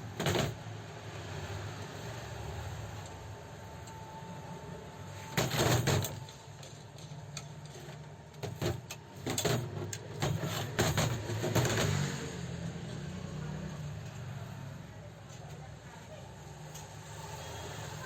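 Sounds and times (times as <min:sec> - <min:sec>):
sharp knocks and clatters: 0:00.0 - 0:00.7, 0:05.3 - 0:12.3.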